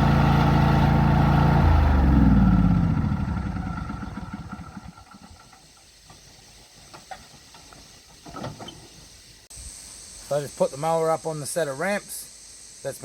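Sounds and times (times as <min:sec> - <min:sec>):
mower engine idling and running down: 0:00.0 - 0:05.6.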